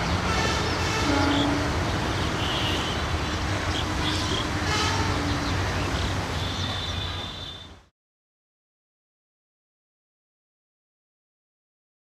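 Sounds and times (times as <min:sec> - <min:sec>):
train wheels rumbling: 0:00.0 - 0:07.5.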